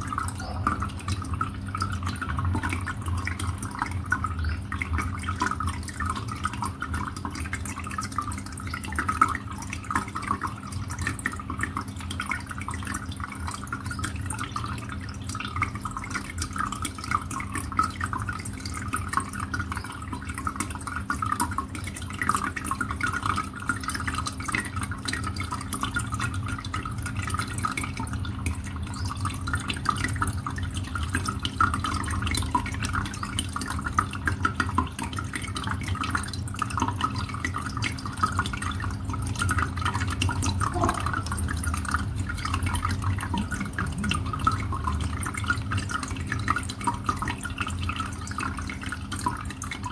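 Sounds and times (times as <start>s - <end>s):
water dripping and trickling: 0.0s - 49.9s
steady low hum: 37.9s - 48.5s.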